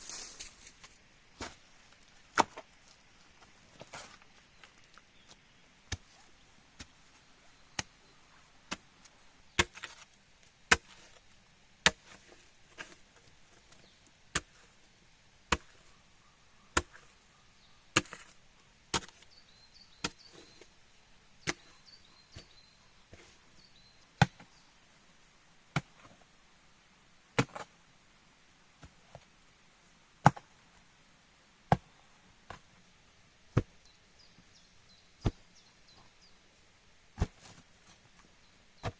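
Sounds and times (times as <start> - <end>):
axe chopping wood: 9.6 - 10.0, 10.7 - 11.1, 16.8 - 17.0.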